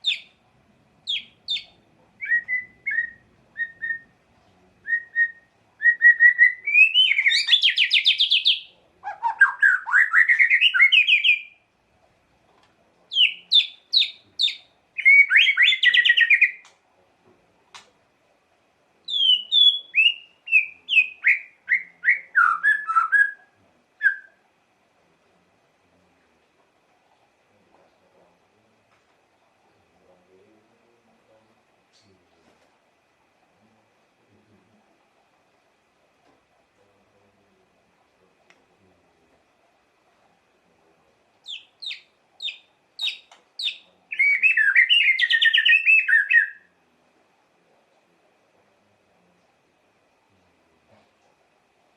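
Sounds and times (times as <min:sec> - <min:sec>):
bird singing whistled notes: 0:00.0 - 0:00.4, 0:01.0 - 0:04.2, 0:04.8 - 0:11.6, 0:13.1 - 0:16.7, 0:19.0 - 0:24.4, 0:41.4 - 0:46.7.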